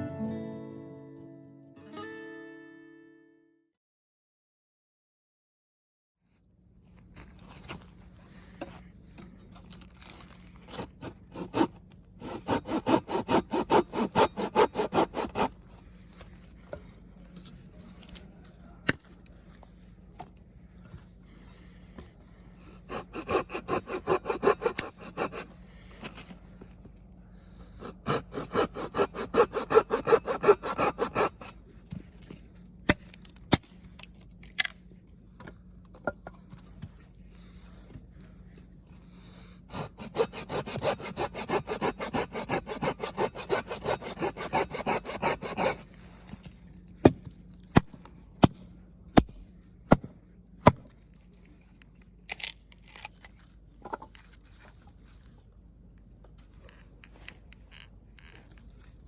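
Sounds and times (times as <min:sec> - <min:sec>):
hand saw cutting wood: 0:10.7 - 0:15.6, 0:22.8 - 0:25.6, 0:27.8 - 0:31.6, 0:39.7 - 0:45.9.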